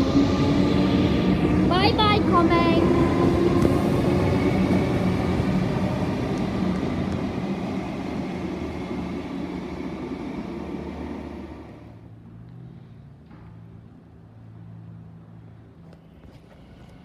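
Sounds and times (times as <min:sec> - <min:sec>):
train motor hum: 0:00.0 - 0:12.9
electric train rumble: 0:00.0 - 0:17.0.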